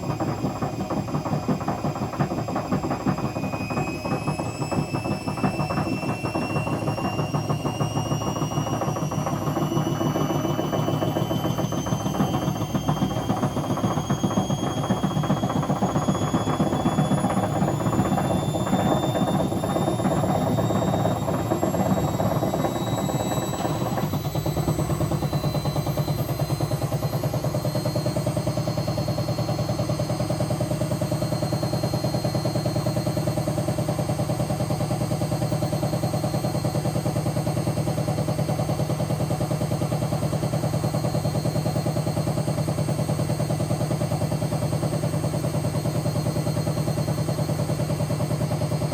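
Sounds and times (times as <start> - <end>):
washing machine motor whine: 0.0 - 48.9.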